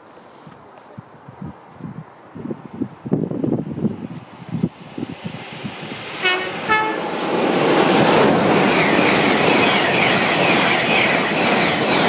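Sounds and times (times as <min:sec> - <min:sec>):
train rushing past: 0:03.6 - 0:12.0
train horn: 0:06.2 - 0:07.1.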